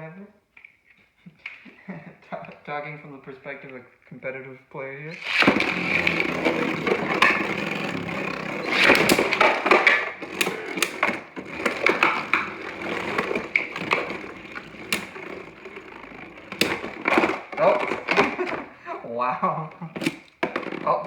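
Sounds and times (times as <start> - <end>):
spinning tops whirring and scraping: 5.1 - 21.0
plastic tops clacking together: 5.2 - 21.0.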